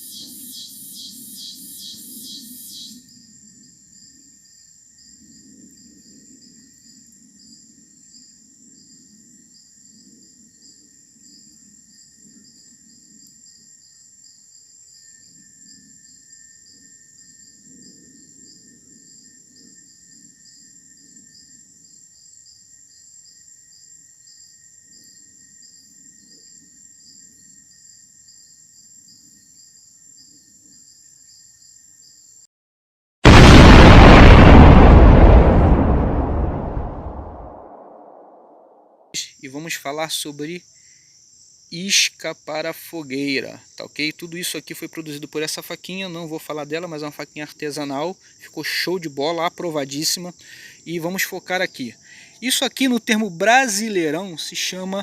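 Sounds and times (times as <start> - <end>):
crickets and insects calling: 0.0 - 32.4, 39.2 - 55.0
low outdoor rumble: 33.3 - 37.7.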